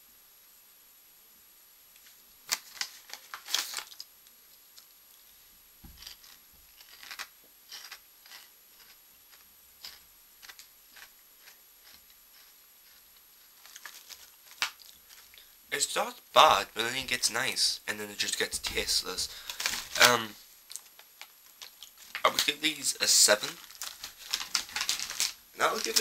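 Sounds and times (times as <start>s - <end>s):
chewing crunchy chips: 6.0s - 12.5s, 13.6s - 15.4s.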